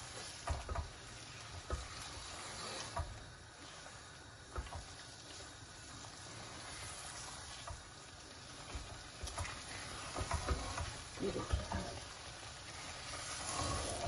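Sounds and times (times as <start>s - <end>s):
food sizzling in a pot: 0.0s - 14.0s
wooden spoon scraping a pot: 1.2s - 3.2s, 8.6s - 14.0s.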